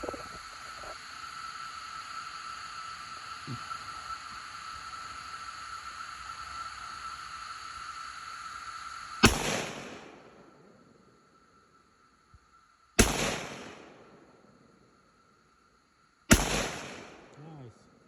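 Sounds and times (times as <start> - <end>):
steady high hiss: 0.0 - 18.0
gunshot: 9.2 - 10.2, 13.0 - 14.0, 16.3 - 17.3.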